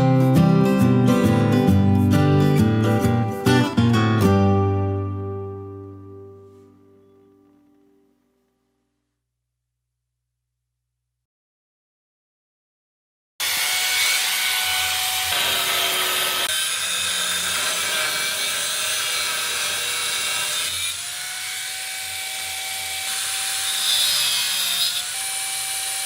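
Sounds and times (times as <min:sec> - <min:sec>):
grinding and cutting noise: 0:13.4 - 0:26.0.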